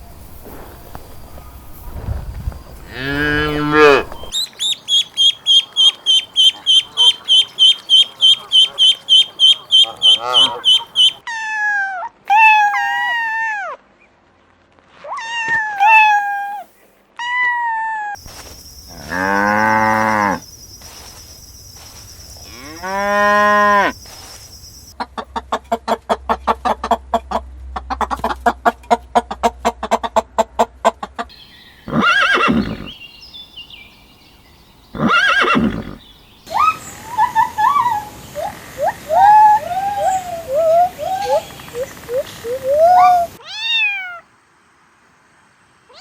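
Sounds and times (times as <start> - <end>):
cow mooing: 2.9 - 4.3, 9.8 - 10.8
cat meowing: 15.2 - 16.6, 43.4 - 44.2.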